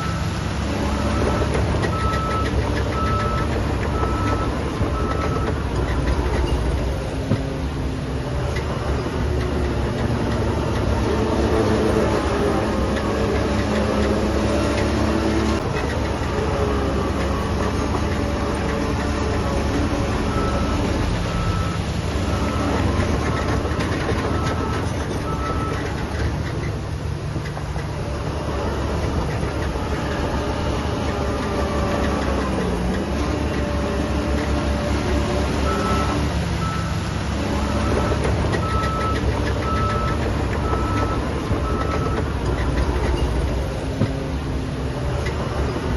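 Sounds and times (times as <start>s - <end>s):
diesel machinery running: 0.0s - 45.9s
reversing alarm beeping: 1.0s - 5.6s, 20.3s - 25.8s, 37.6s - 42.3s.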